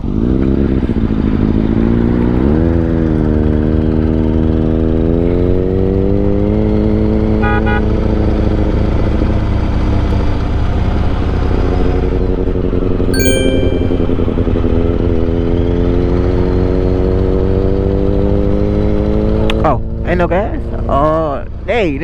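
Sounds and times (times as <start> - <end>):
high beeping: 13.2 - 14.6.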